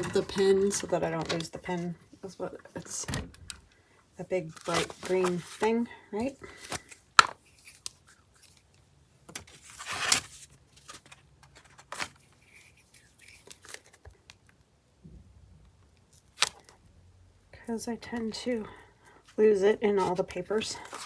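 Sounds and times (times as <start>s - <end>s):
paper rustling and scraping: 4.4s - 8.6s, 9.4s - 14.0s, 19.9s - 21.0s.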